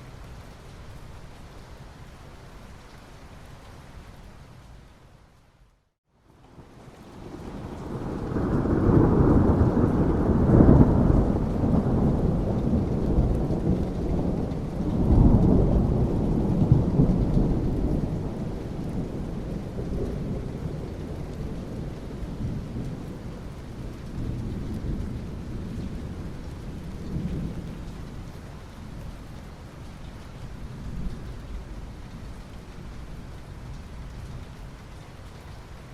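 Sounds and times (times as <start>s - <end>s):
steady rain: 0.0s - 35.9s
thunder rumbling: 7.2s - 29.2s.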